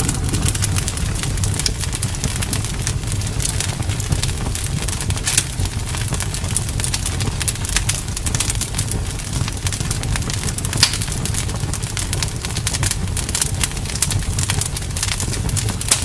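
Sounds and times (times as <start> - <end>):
steady low rumble: 0.0 - 12.0
bonfire crackling and popping: 0.0 - 16.0.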